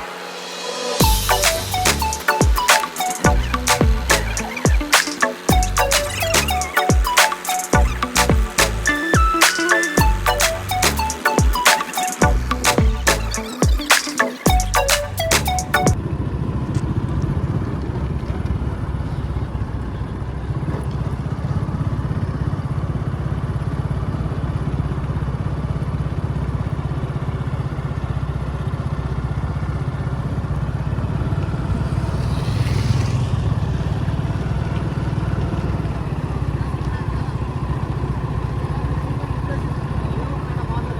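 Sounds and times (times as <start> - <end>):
tractor diesel engine running: 14.5 - 40.9.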